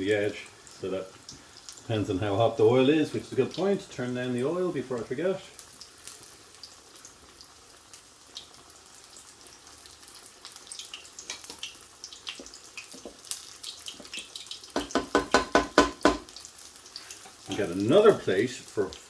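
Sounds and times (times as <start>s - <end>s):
chicken sizzling in frying pan: 0.0s - 19.0s.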